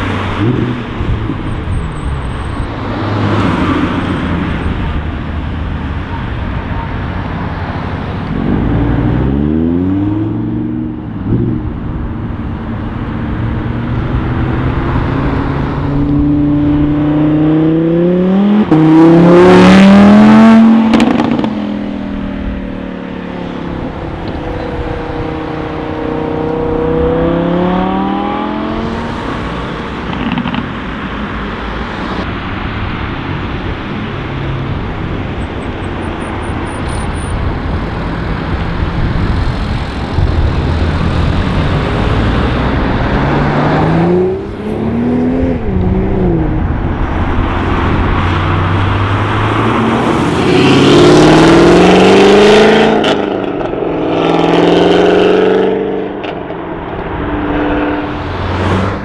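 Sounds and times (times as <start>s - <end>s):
sports car engine accelerating: 8.2s - 31.0s.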